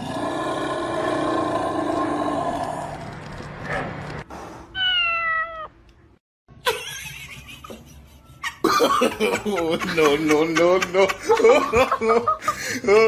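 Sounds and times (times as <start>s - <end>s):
cat meowing: 4.8s - 5.8s.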